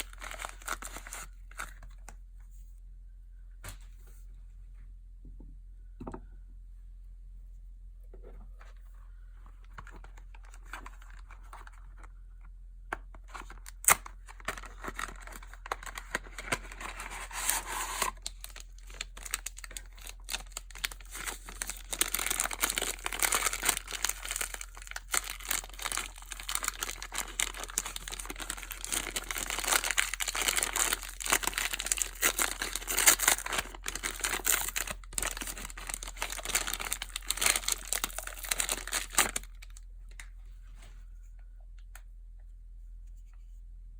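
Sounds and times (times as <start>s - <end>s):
packaging crinkling and tearing: 0.0s - 2.0s, 9.7s - 12.1s, 13.2s - 39.8s.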